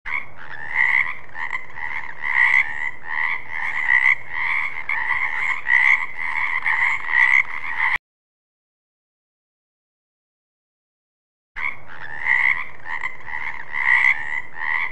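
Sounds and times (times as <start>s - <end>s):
frogs croaking: 0.1s - 8.0s, 11.6s - 14.9s.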